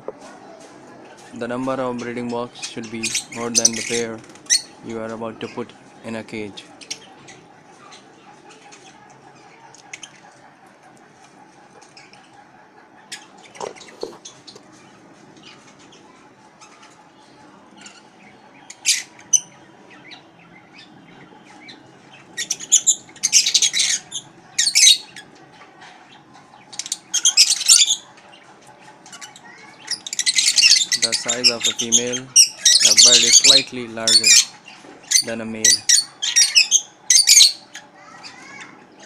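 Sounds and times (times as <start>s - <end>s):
lovebirds screeching chatter: 0.0s - 39.0s.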